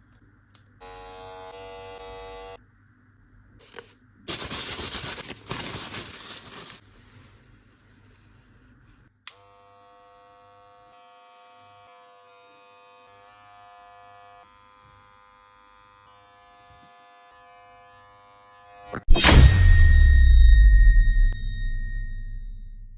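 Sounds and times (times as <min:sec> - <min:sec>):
hair clipper buzzing: 0:00.8 - 0:02.6, 0:09.3 - 0:19.0.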